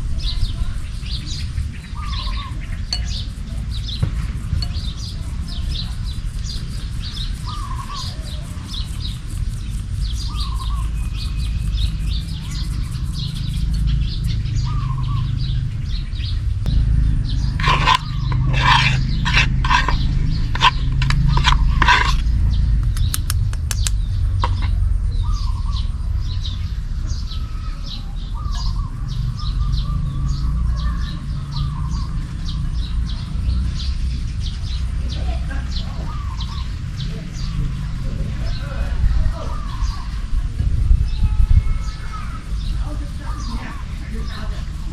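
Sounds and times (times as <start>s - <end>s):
small birds chirping: 0.0s - 44.9s
steady low rumble: 8.6s - 26.8s.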